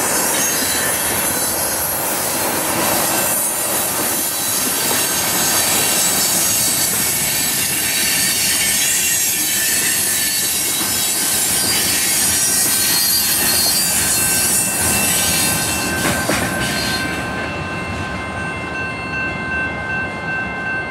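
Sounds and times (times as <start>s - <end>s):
train wheels rolling on rails: 0.0s - 20.9s
high-pitched wheel squeal: 4.2s - 16.0s.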